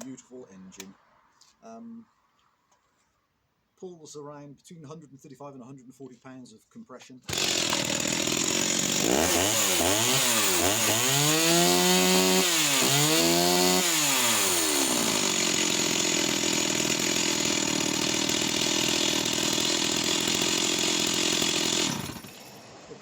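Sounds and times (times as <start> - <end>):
chainsaw engine revving and idling: 7.3 - 23.0.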